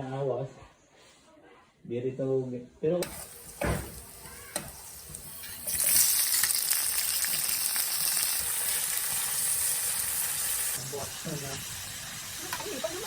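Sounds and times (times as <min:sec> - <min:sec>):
food sizzling in a pan: 0:03.0 - 0:13.0.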